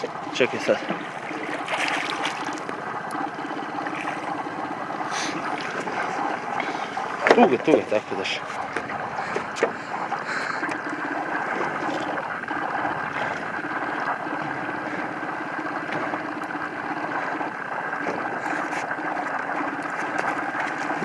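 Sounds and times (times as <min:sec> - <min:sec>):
boat engine humming: 0:00.0 - 0:21.0
water around hull: 0:00.0 - 0:21.0.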